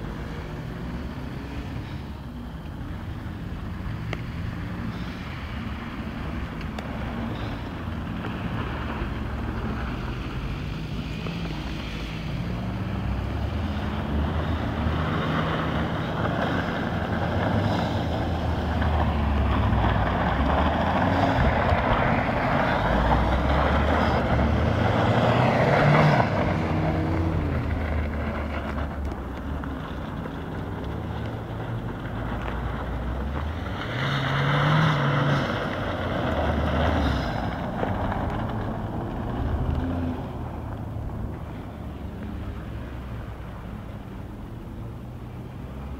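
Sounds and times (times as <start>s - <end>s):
car engine revving: 0.0s - 45.9s
tyres and wind hiss: 0.0s - 45.9s.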